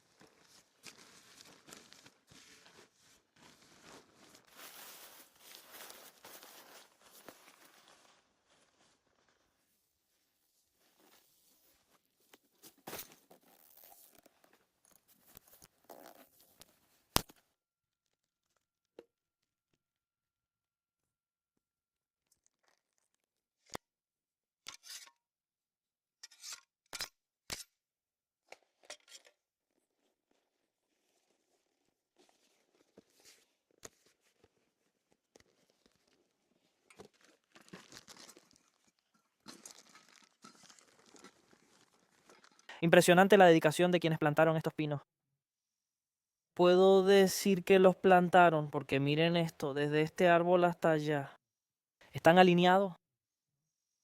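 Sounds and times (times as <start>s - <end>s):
rustling crinkling handling: 0.0s - 9.6s, 29.9s - 42.7s.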